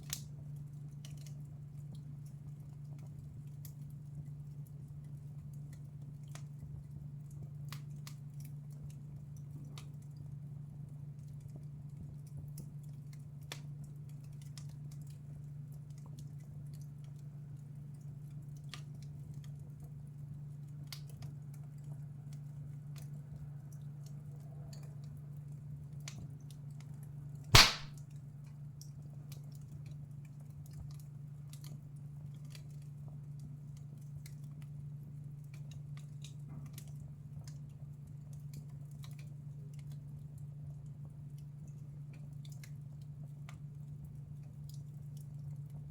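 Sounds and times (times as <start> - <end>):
loud sharp pop of fire: 27.6 - 27.9
wood fire crackling: 27.6 - 27.9.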